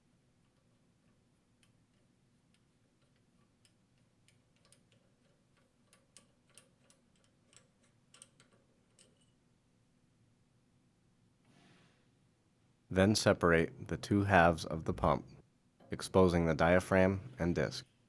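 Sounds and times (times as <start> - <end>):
faint metallic clicks of wrench: 0.4 - 9.4.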